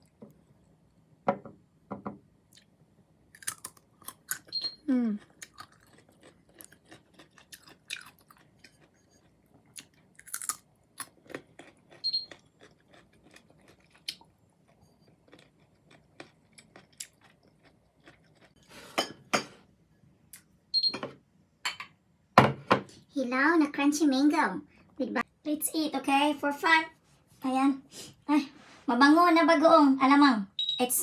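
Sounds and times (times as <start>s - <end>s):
chewing crunchy mango: 3.4s - 18.7s.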